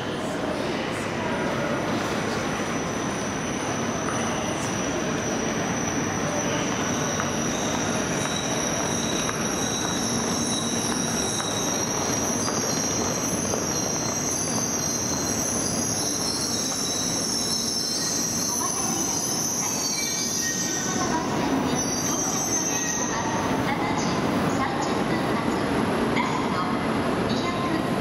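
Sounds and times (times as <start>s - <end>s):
train braking to a stop: 0.0s - 28.0s
high-pitched brake squeal: 2.0s - 24.1s.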